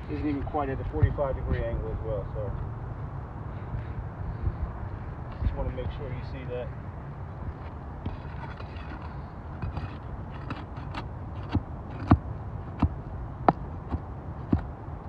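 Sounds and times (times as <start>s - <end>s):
taps and scrapes on shingle roof: 7.5s - 14.8s.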